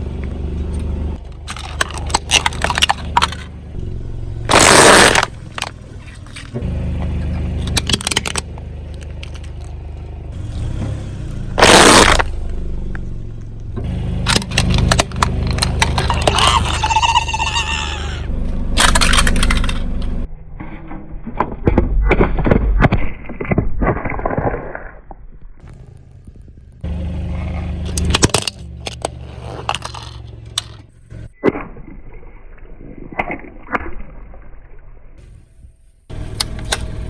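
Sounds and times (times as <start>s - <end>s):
low engine hum: 0.0s - 20.4s, 25.5s - 31.4s, 35.2s - 37.0s
tyre crushing brittle objects: 1.2s - 3.6s, 4.5s - 6.6s, 7.6s - 9.8s, 11.6s - 12.3s, 14.3s - 19.9s, 27.4s - 30.8s.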